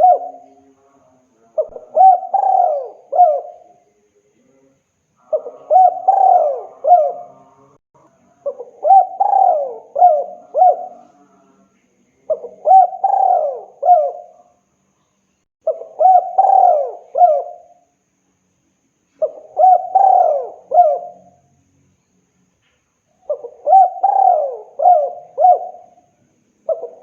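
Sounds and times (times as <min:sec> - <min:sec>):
dove cooing: 0:00.0 - 0:00.6, 0:01.6 - 0:03.7, 0:05.2 - 0:07.6, 0:08.4 - 0:11.2, 0:12.3 - 0:14.4, 0:15.6 - 0:17.8, 0:19.2 - 0:21.4, 0:23.2 - 0:27.0.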